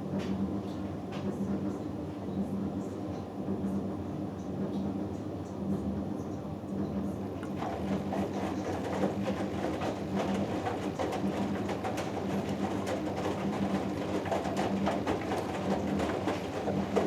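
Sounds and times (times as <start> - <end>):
clicks and splashes: 7.4 - 17.0
washing machine motor humming: 7.4 - 17.0.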